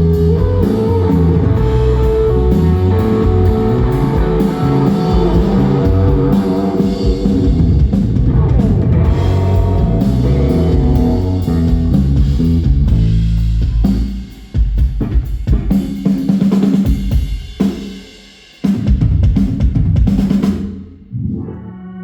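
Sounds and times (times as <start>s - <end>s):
rock band playing live: 0.0s - 18.0s
drum hits: 1.2s - 14.0s.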